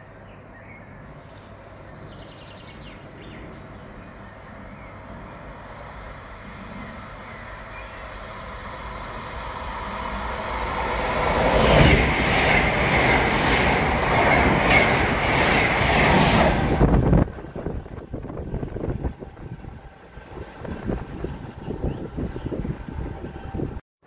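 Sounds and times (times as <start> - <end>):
train passing at speed: 2.1 - 23.8.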